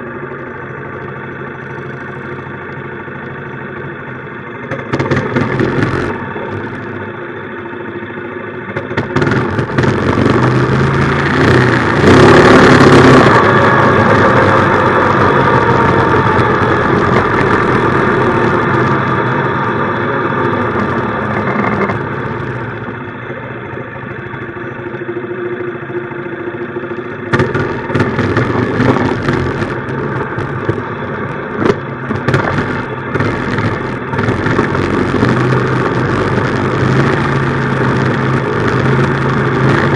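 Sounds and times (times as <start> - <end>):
small engine running: 0.0 - 39.9
sharp crackling and knocking: 4.7 - 6.9, 8.7 - 19.6, 20.5 - 23.0, 27.3 - 39.9.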